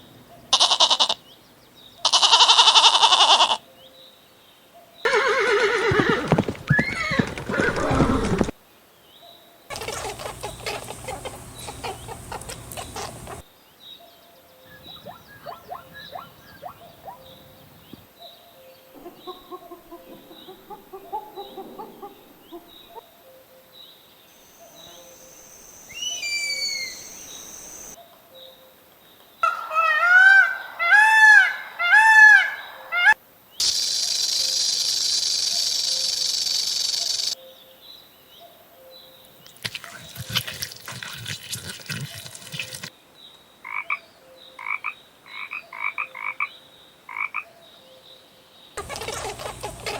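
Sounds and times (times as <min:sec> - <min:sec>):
faint bird calls: 0:00.3 - 0:04.1, 0:04.8 - 0:08.5, 0:09.2 - 0:23.5, 0:24.3 - 0:28.4, 0:48.8 - 0:49.9
loud honk-like calls: 0:09.7 - 0:13.4
falling whistled chirps: 0:24.4 - 0:28.0, 0:33.6 - 0:37.4.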